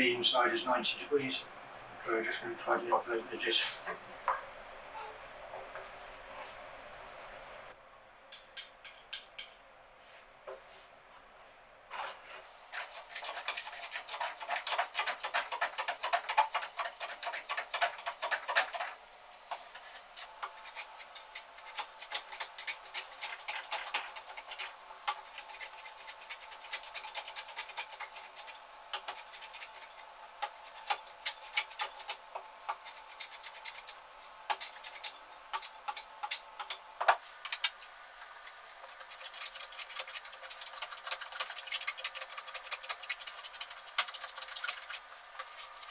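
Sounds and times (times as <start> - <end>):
wood rubbing strokes: 11.9 - 37.4, 38.8 - 45.9.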